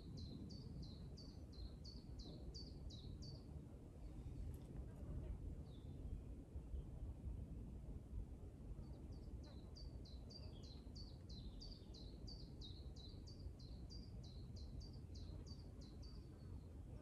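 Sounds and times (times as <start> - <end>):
faint low rumble: 0.0 - 11.9.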